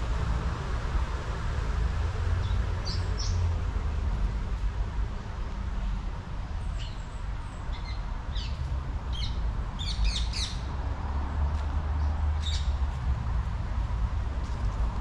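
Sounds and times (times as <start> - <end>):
small birds chirping: 6.7 - 10.7.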